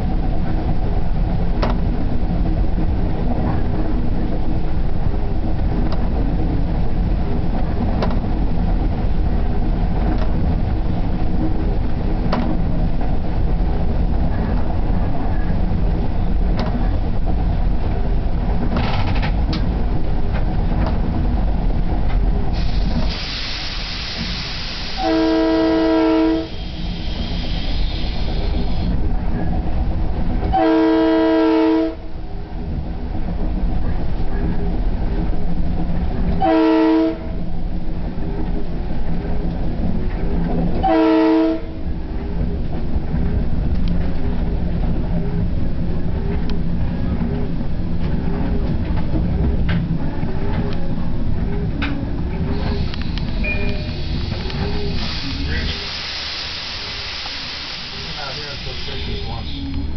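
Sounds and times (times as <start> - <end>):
train rumble: 0.0 - 59.9
rail-joint clicks: 1.5 - 2.0, 5.5 - 6.2, 7.8 - 8.4, 10.0 - 10.4, 12.2 - 13.2, 16.4 - 17.0, 18.5 - 21.2, 22.0 - 25.1, 43.6 - 44.4, 47.2 - 55.8, 57.2 - 59.9
air hissing: 22.5 - 25.1, 26.4 - 29.0, 52.5 - 59.8
train horn blasts: 24.9 - 26.8, 30.5 - 32.1, 36.4 - 37.4, 40.8 - 41.9.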